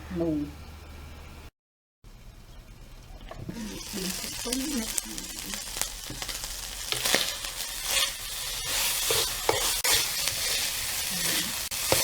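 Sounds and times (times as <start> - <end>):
meat sizzling in a pan: 3.5 - 12.0
spatula scraping a pan: 6.2 - 12.0.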